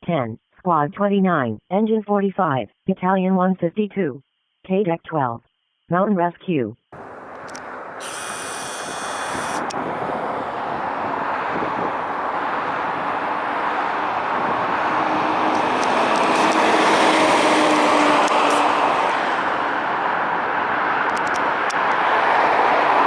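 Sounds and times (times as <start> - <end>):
fire engine approaching: 7.0 - 23.0
high-pitched electronic tone: 8.0 - 9.7.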